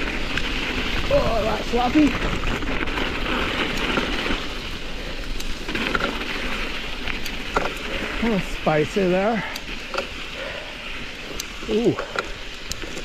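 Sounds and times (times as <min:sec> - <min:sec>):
bike tyres rolling through snow: 0:00.0 - 0:13.0
faint ticks: 0:05.2 - 0:06.1, 0:09.4 - 0:13.0.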